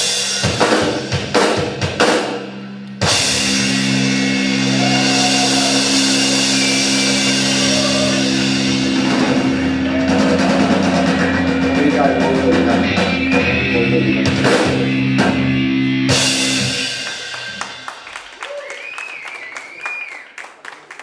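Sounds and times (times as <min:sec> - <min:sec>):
drum fills: 0:00.0 - 0:19.4
electric guitars sustained chord: 0:02.5 - 0:18.2.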